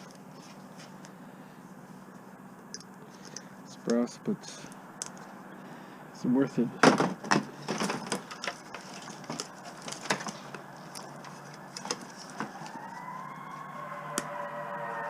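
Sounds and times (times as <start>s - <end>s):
metal and plastic parts clicking: 6.9s - 12.4s
held musical tone: 12.7s - 15.0s.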